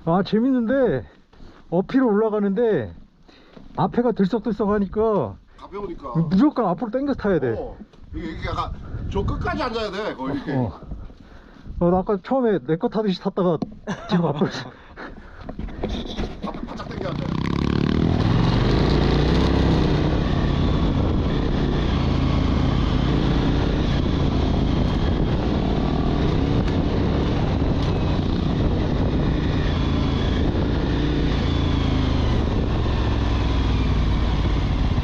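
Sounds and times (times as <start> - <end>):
motorcycle engine revving: 16.7 - 35.0.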